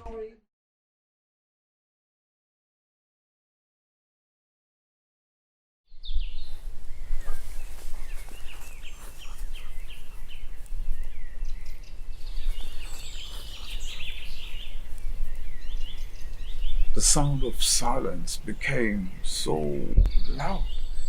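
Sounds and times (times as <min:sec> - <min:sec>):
small birds chirping: 0:05.9 - 0:21.0
steady low rumble: 0:06.4 - 0:21.0.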